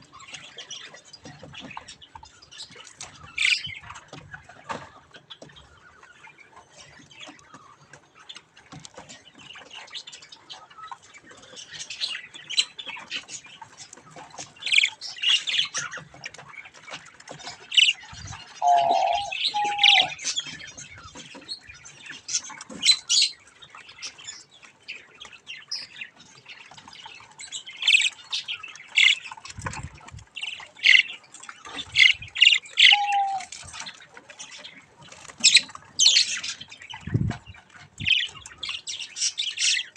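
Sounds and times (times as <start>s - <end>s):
budgerigar chicks chirping: 0.0s - 39.9s
lower longer bird calls: 18.6s - 20.2s, 32.4s - 33.5s.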